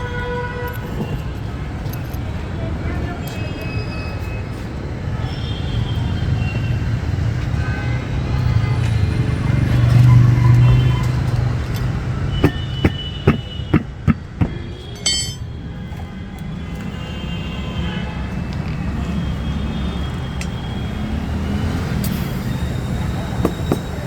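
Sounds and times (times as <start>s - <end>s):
sharp metallic taps and clinks: 11.7s - 15.6s
vehicle rumble: 18.3s - 24.0s.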